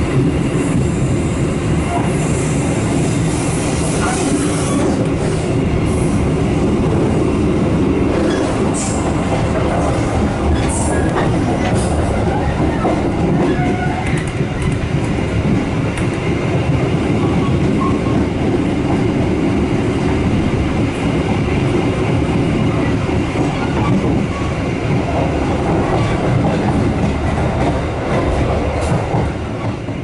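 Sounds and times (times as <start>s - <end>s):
train wheel and rail noise: 0.0s - 30.0s.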